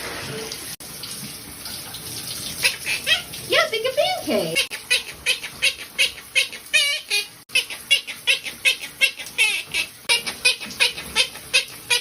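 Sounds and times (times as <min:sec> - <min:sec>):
parrot chirping: 0:02.6 - 0:12.0.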